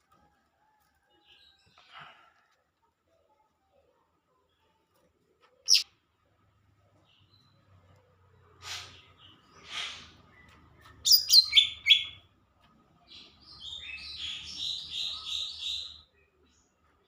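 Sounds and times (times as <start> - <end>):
bird singing: 10.3 - 12.3.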